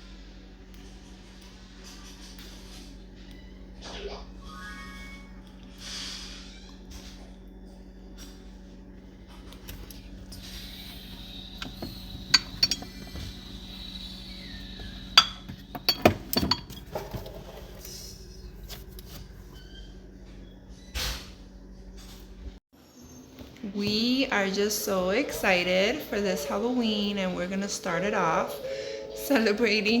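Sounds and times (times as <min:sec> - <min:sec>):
low steady hum: 0:00.0 - 0:22.6, 0:23.4 - 0:30.0.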